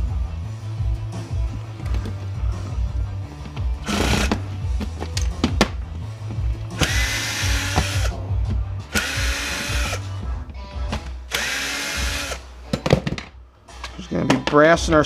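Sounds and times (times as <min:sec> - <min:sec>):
power drill whining: 0:03.8 - 0:04.4, 0:06.8 - 0:08.1, 0:08.9 - 0:10.0, 0:11.3 - 0:12.4.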